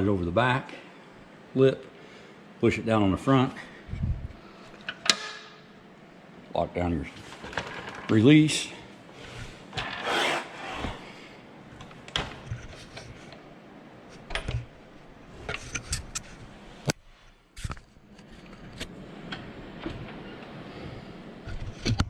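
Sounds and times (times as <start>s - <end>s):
metal scraping: 9.8s - 11.2s.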